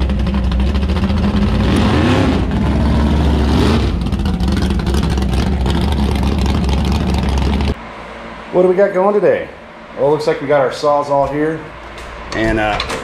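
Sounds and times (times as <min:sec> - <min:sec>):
car engine driving by: 0:00.0 - 0:10.2.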